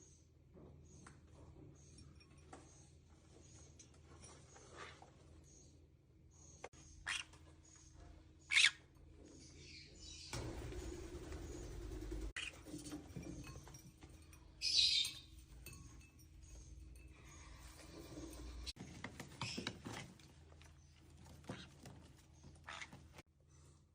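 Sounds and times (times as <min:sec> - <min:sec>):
parakeet high calls: 0:06.8 - 0:07.4, 0:08.4 - 0:08.9.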